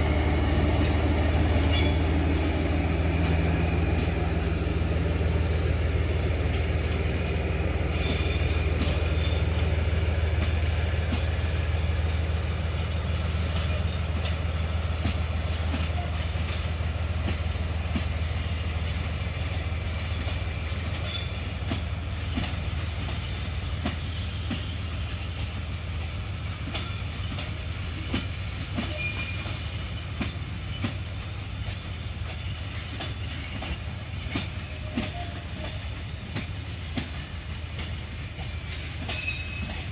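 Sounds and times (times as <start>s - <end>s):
locomotive rumble: 0.0s - 39.9s
train wheels clicking over rail joints: 0.0s - 39.9s
wheel squeal: 1.7s - 2.1s, 24.4s - 25.0s.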